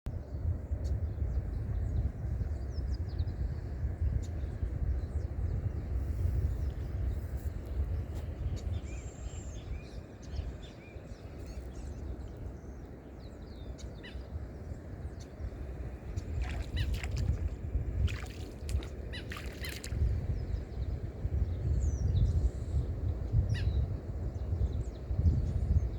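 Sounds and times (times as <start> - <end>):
faint bird chirps: 16.1 - 20.4.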